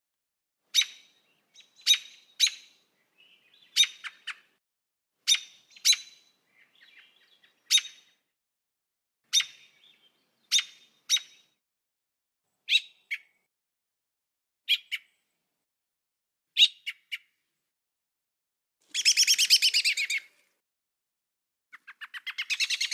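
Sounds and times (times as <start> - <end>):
bird chirping: 0.7 - 4.6, 5.2 - 8.3, 9.3 - 11.6, 12.6 - 13.5, 14.7 - 15.3, 18.9 - 20.4, 21.7 - 22.9
soft bird twittering: 0.7 - 4.6, 5.3 - 8.3, 9.3 - 11.6, 18.9 - 20.4, 21.8 - 22.9.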